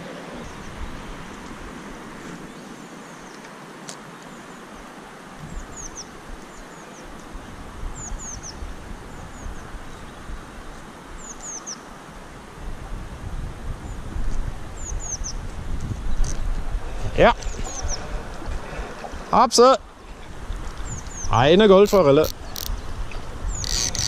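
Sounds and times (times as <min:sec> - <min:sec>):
steady outdoor hiss: 0:00.0 - 0:24.0
small bird calling: 0:20.8 - 0:24.0.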